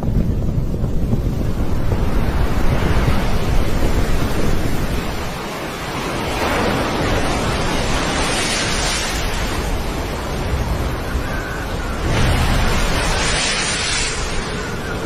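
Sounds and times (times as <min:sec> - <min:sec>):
steady rushing noise: 0:00.0 - 0:15.0
wind rumbling on microphone: 0:00.0 - 0:15.0
bright rushing hiss: 0:11.9 - 0:15.0.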